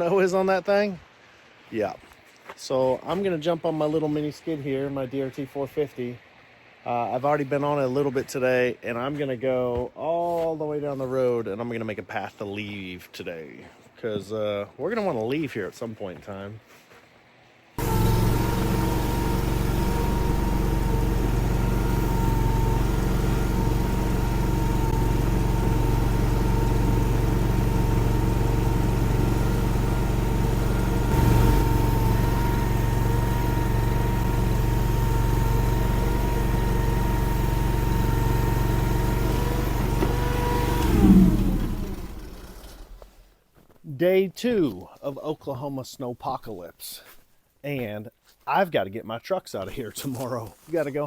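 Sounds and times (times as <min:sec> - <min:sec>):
skid steer engine running: 0:17.8 - 0:43.3.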